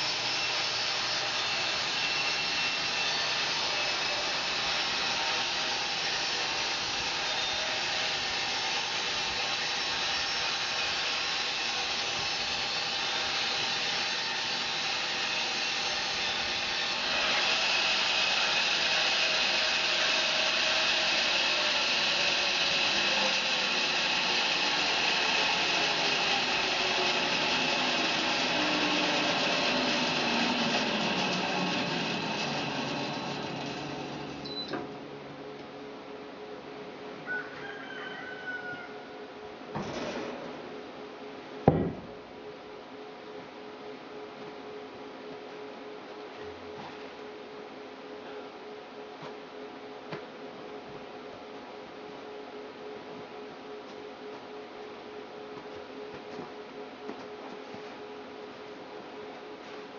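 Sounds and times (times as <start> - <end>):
bandsaw sawing through log: 0.0 - 34.4.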